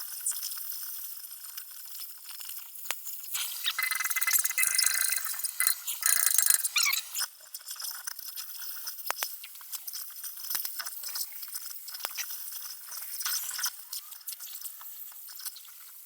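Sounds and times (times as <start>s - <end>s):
torch cutting steel crackling: 3.4s - 7.2s.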